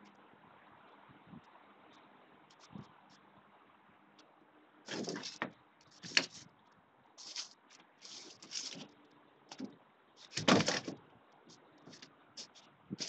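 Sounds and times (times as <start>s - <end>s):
objects rattling and knocking: 4.9s - 6.4s, 9.5s - 11.0s.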